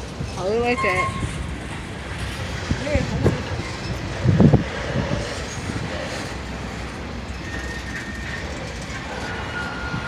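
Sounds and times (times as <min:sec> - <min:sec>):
freight train rumbling on rails: 0:00.0 - 0:10.0
faint thin squeal: 0:07.3 - 0:10.0.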